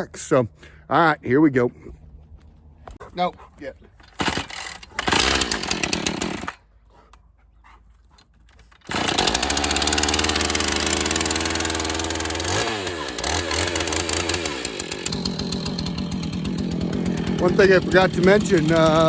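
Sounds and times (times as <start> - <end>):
chainsaw engine running: 4.1 - 6.6, 8.8 - 19.0.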